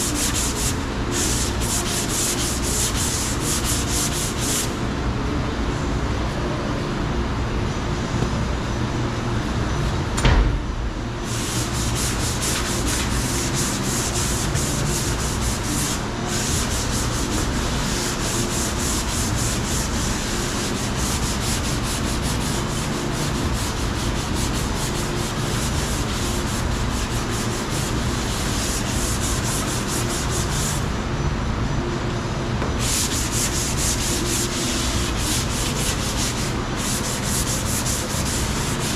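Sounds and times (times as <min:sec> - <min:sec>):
sanding body filler: 0:00.0 - 0:04.8, 0:11.2 - 0:30.8, 0:32.8 - 0:38.9.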